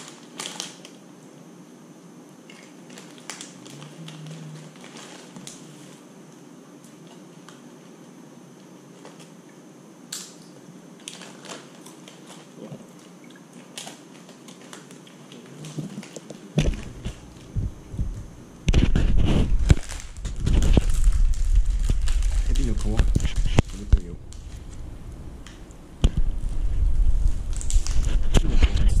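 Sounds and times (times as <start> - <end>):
low hiss: 0.0 - 29.0
crunchy food chewing: 11.0 - 29.0.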